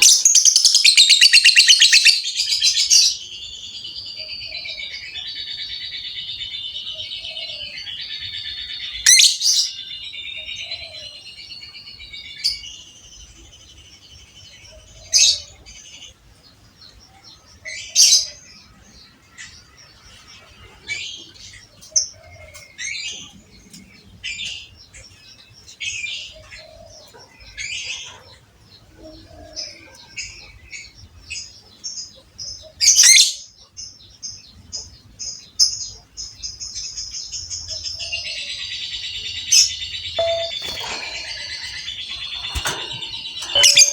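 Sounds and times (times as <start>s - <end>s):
lovebird chattering and chirping: 40.2s - 43.9s.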